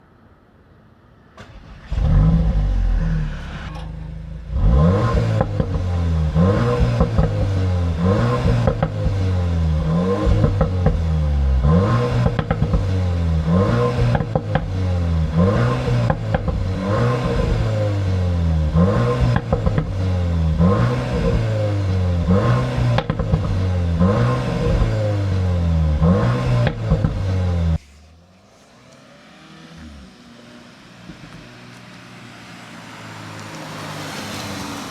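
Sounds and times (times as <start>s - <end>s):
exhaust crackling pops: 1.4s - 11.1s, 12.0s - 17.7s, 18.7s - 20.0s, 22.2s - 25.1s, 26.0s - 27.9s
car engine starting and revving: 1.4s - 34.9s.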